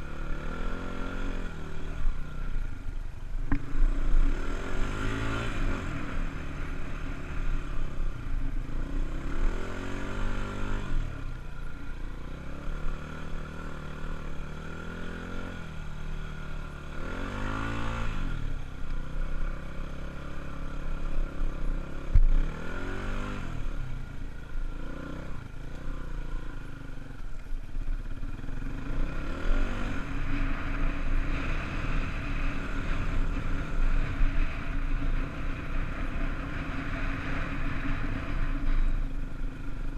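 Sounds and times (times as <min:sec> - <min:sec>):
dirt bike engine revving: 0:03.6 - 0:07.6, 0:17.0 - 0:18.4, 0:28.2 - 0:38.9.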